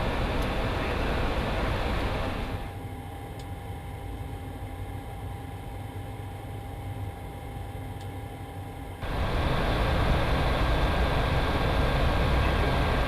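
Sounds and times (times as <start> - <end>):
jet engines running: 0.0 - 4.3, 9.0 - 13.0.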